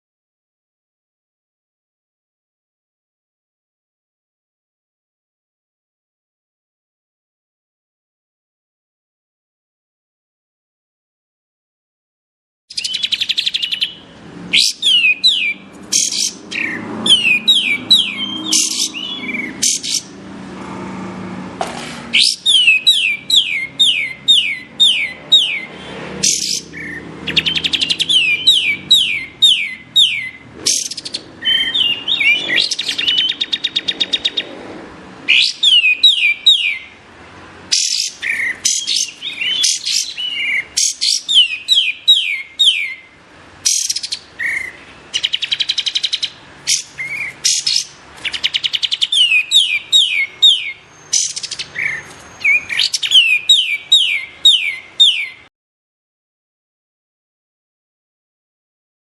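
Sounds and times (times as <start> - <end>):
bird whistled song: 12.7 - 20.1, 22.1 - 34.5, 35.3 - 37.0, 37.7 - 55.5.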